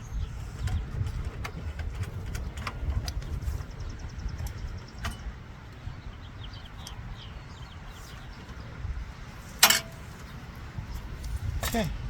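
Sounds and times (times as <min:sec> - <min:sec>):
sharp metallic clink: 0:09.6 - 0:10.0.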